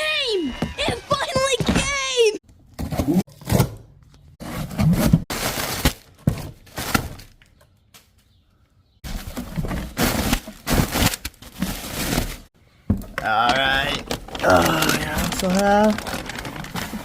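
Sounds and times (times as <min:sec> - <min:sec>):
cardboard and paper rustling: 0:04.4 - 0:08.1, 0:09.0 - 0:12.6, 0:13.2 - 0:17.0.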